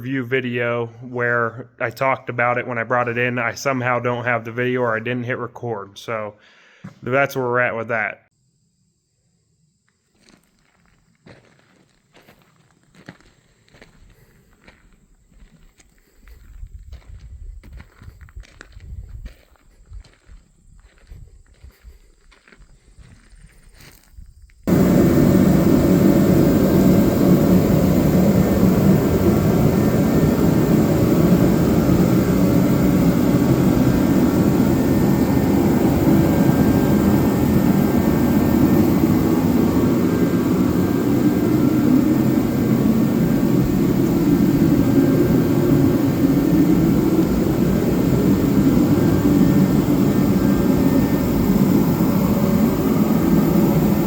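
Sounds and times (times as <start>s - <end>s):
engine running: 24.7s - 54.0s.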